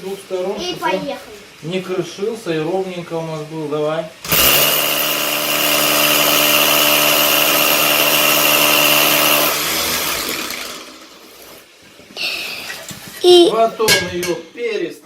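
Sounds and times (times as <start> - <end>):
power tool grinding brick: 4.2 - 11.7.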